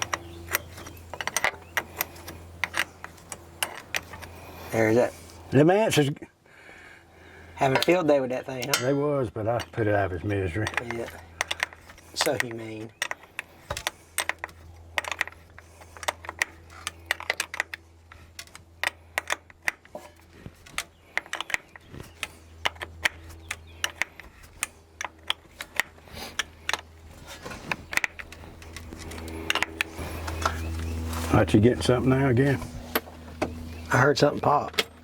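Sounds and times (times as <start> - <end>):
steady low hum: 0.0 - 35.0
metal hand tools tapping: 7.7 - 9.0.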